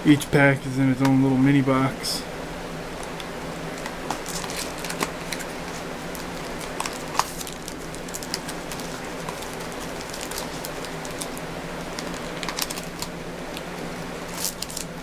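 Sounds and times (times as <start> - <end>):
steady low hum: 0.0 - 15.0
card packaging clicks and crinkles: 3.0 - 15.0.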